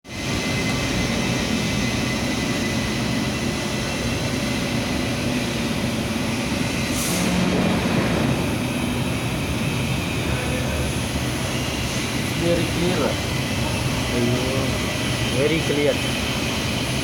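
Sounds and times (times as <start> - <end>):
workshop machinery running: 0.1 - 17.0
brief high hiss: 6.9 - 8.4.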